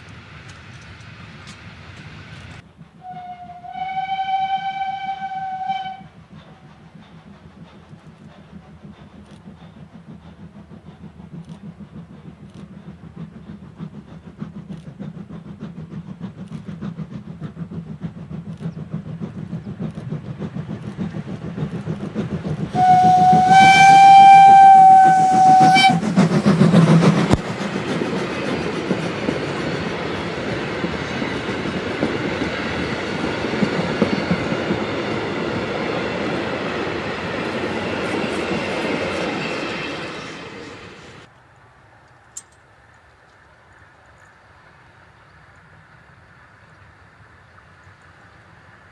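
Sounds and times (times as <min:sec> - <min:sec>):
train rumble: 0:00.0 - 0:48.9
train whistle: 0:03.0 - 0:06.7, 0:22.7 - 0:26.0.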